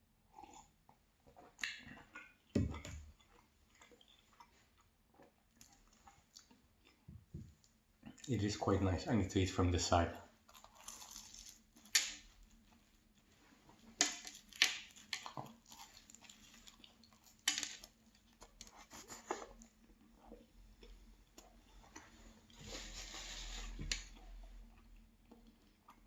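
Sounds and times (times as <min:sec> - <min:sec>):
soft chewing: 0:00.2 - 0:08.9, 0:10.2 - 0:26.0
crisp pastry crackling bites: 0:10.5 - 0:12.8, 0:13.9 - 0:18.7.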